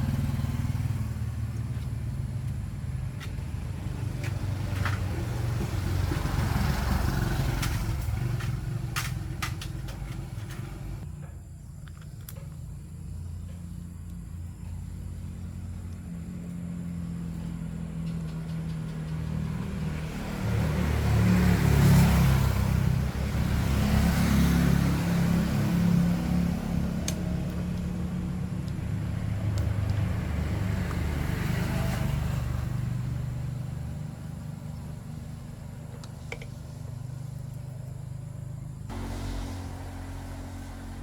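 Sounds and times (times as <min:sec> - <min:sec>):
motor rumbling: 0:00.0 - 0:11.4, 0:22.8 - 0:41.0.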